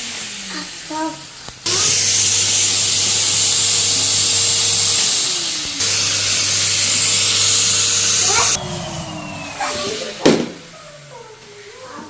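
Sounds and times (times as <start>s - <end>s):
vacuum cleaner motor humming: 1.7s - 11.2s.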